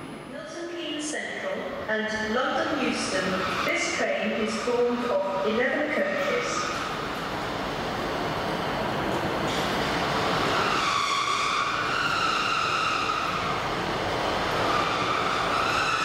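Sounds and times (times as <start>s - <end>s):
passenger train running over rails: 0.0s - 16.0s
train wheels squealing: 10.4s - 13.7s, 14.5s - 16.0s.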